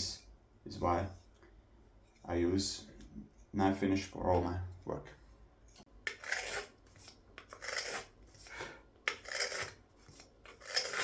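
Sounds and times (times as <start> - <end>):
knife scraping wood: 6.0 - 11.0.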